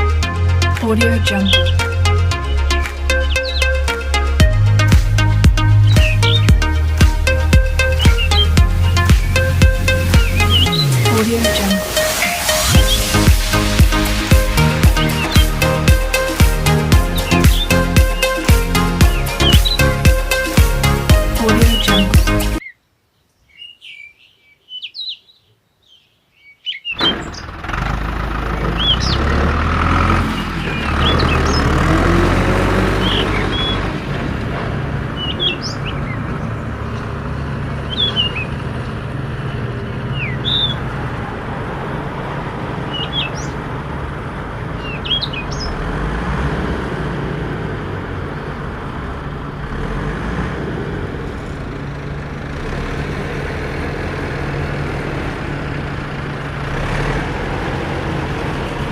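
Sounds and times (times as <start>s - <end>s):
low engine running: 0.0s - 22.6s
birds chirping: 0.0s - 27.6s, 28.3s - 42.0s, 42.7s - 45.9s.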